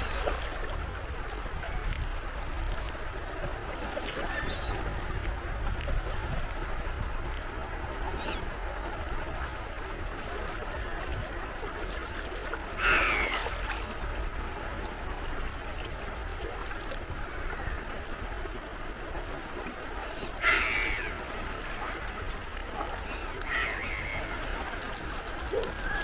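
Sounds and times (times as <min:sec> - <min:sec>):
sea waves washing: 0:00.0 - 0:26.0
harsh gull calls: 0:12.8 - 0:13.6, 0:20.0 - 0:22.0, 0:22.9 - 0:26.0.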